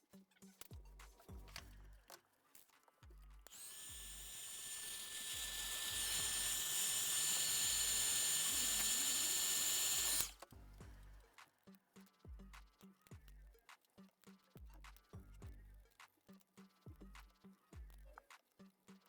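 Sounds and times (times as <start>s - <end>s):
background music with beat: 0.0s - 4.1s, 10.3s - 19.0s
power tool whining: 3.5s - 10.5s.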